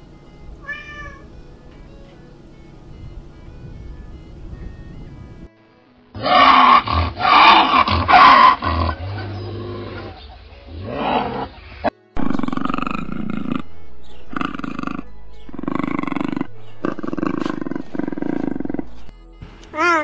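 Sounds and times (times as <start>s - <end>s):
lynx harsh calls: 12.2s - 19.1s
puma rattling vocalization: 12.2s - 19.1s.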